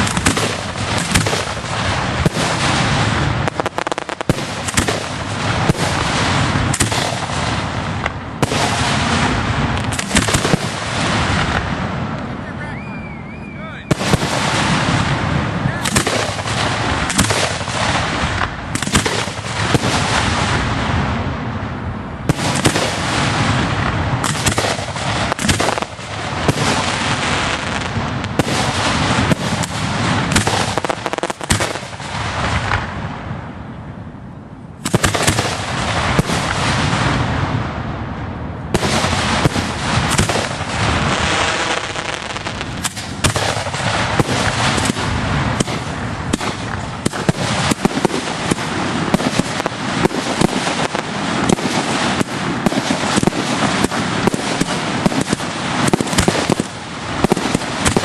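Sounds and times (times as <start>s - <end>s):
fireworks firing and crackling: 0.0s - 34.0s, 34.7s - 58.0s.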